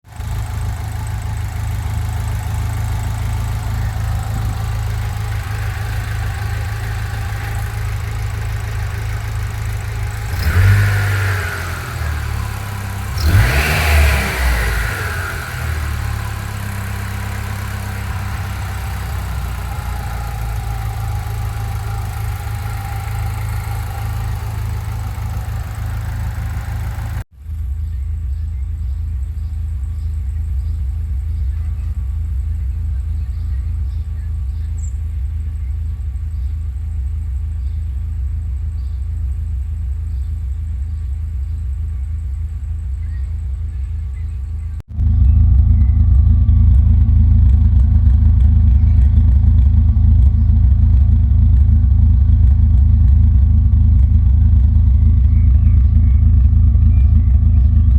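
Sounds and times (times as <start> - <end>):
car engine idling roughly: 0.0 - 27.3, 30.2 - 57.9
engine revving: 0.1 - 27.3.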